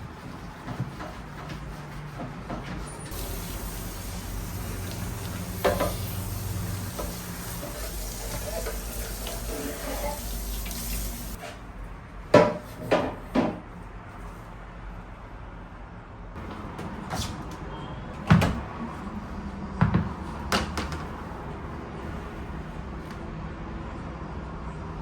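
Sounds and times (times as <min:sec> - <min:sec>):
rushing water: 0:03.1 - 0:11.4.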